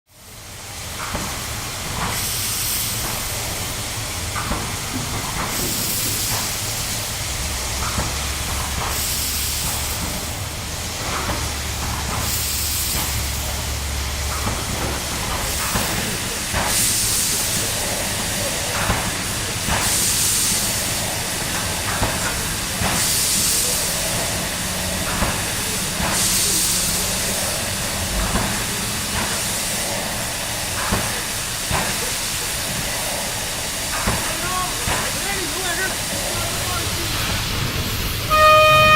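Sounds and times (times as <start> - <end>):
steam locomotive hissing: 0.1 - 38.9.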